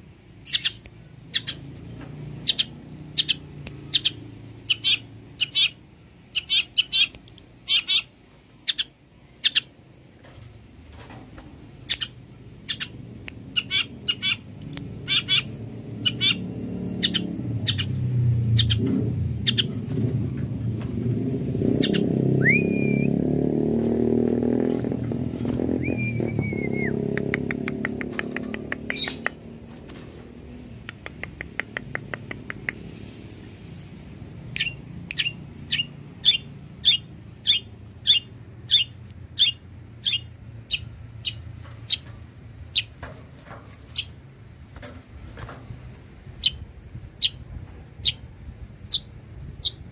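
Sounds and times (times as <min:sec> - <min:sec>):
bird singing sharp repeated notes: 0:00.4 - 0:01.7, 0:02.3 - 0:09.8, 0:11.8 - 0:20.0, 0:21.6 - 0:29.5, 0:34.4 - 0:42.1, 0:42.7 - 0:43.0, 0:43.8 - 0:44.2, 0:46.4 - 0:47.4, 0:48.0 - 0:49.9.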